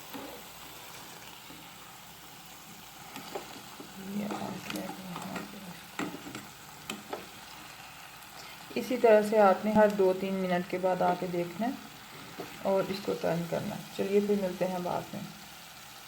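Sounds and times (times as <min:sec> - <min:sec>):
chicken sizzling in a pan: 0:00.0 - 0:16.0
turner scraping and tapping pan: 0:03.0 - 0:07.5.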